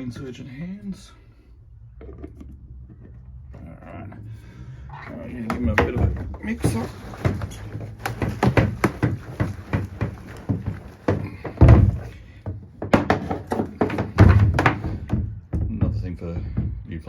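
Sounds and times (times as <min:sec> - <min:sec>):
fuel can thunking: 0:05.1 - 0:16.9.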